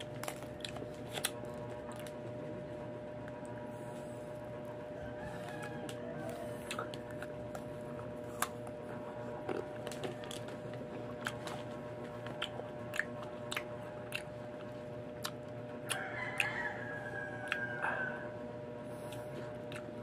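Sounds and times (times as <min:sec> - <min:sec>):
crunching crisp mango: 0:00.0 - 0:04.5, 0:05.1 - 0:17.9
faint hum: 0:00.0 - 0:20.0.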